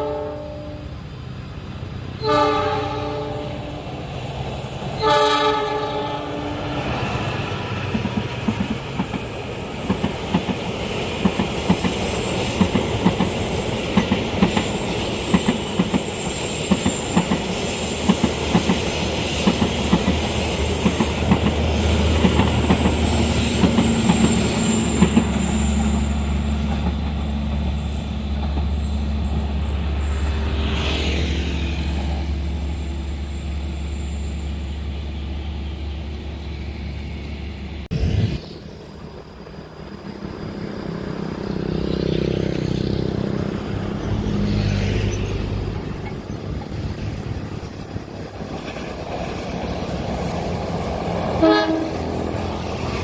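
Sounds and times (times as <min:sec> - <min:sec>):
train low rumble: 0:00.0 - 0:53.0
train wheels clicking over rail joints: 0:06.8 - 0:29.9, 0:45.4 - 0:53.0
high wheel squeal: 0:13.3 - 0:19.8, 0:21.7 - 0:37.9, 0:44.0 - 0:53.0.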